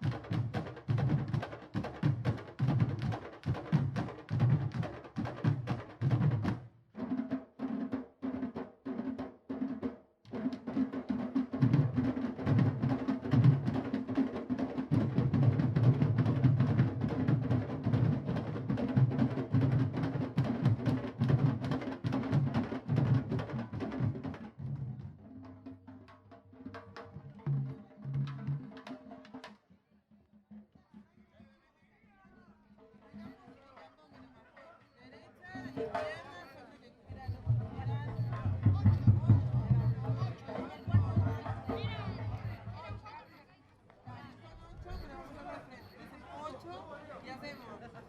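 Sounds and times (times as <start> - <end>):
drum group playing: 0.0 - 31.3, 32.1 - 48.0.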